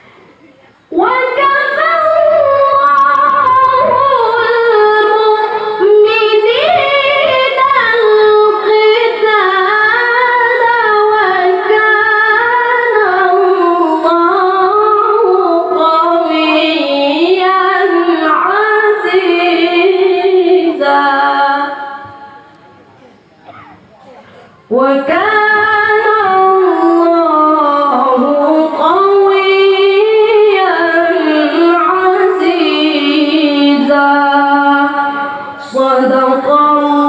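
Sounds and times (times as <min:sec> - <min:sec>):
child reciting melodically: 0:01.0 - 0:18.2.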